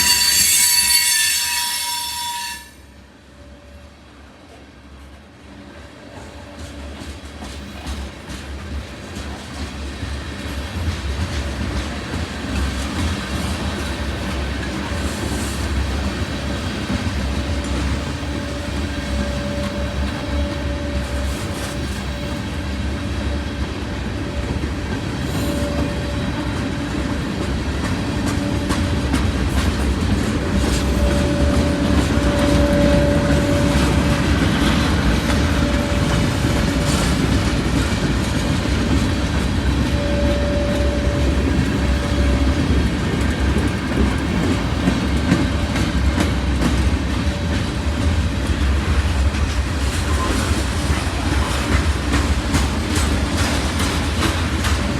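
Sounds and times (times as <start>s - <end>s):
freight train rumble: 0.0s - 54.9s
train wheel clatter: 4.5s - 54.9s
steady whine: 30.3s - 45.8s.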